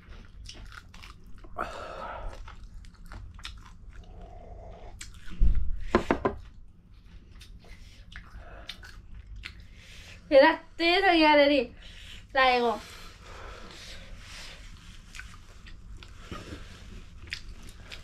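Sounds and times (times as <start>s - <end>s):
chewing food: 0.0s - 1.6s, 2.2s - 5.4s, 7.0s - 9.8s, 14.8s - 18.0s.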